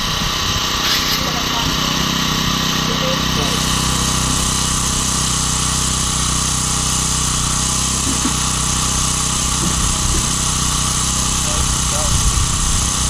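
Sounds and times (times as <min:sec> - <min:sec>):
combustion engine running: 0:00.0 - 0:13.0.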